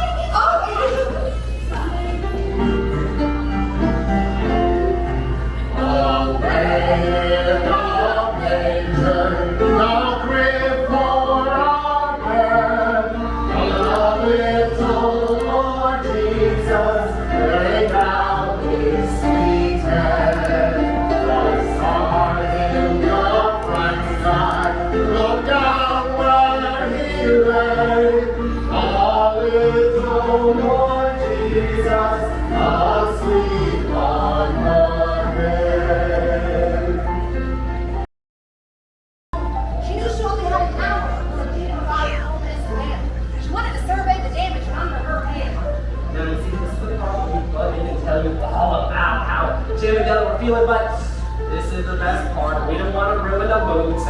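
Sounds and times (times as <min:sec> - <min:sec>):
group singing in harmony: 0:04.4 - 0:37.6.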